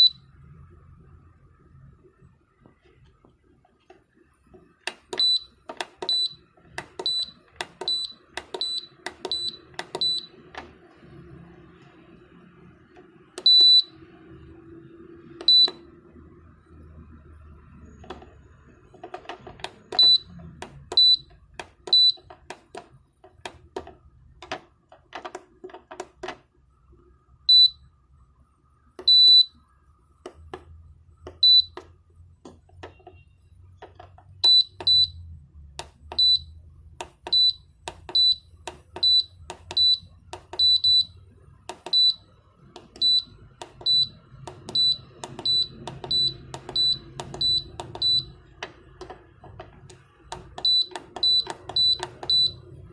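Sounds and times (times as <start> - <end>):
buzzer beeping: 0.0 - 0.2, 4.9 - 10.5, 13.4 - 14.0, 15.4 - 15.9, 18.9 - 22.8, 27.5 - 27.9, 29.0 - 29.6, 31.3 - 31.9, 34.4 - 35.2, 35.8 - 48.6, 49.9 - 52.9
sharp clicks: 42.7 - 52.6.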